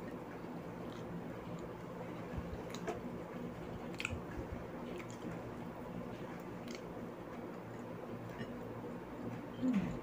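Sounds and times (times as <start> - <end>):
wet chewing: 0.8 - 8.5.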